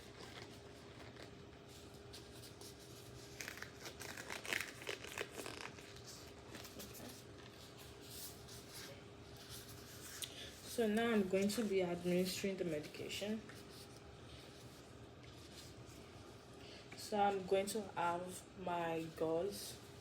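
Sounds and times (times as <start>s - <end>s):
disposable glove crinkling: 0.0s - 12.4s
faint room hum: 0.0s - 20.0s.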